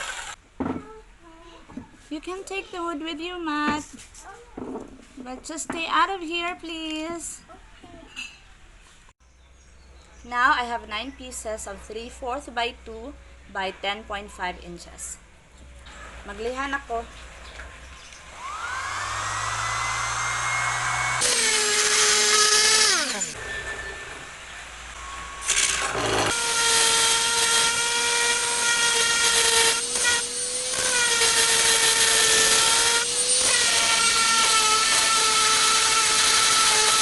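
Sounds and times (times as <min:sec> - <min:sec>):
electric sander sanding wood: 0:00.0 - 0:00.4, 0:18.2 - 0:23.4, 0:25.4 - 0:37.0.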